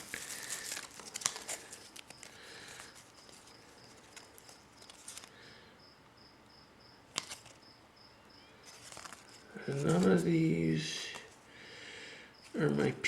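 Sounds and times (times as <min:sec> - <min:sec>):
trading cards rustling: 0:00.0 - 0:05.4, 0:07.1 - 0:07.6, 0:08.6 - 0:11.4.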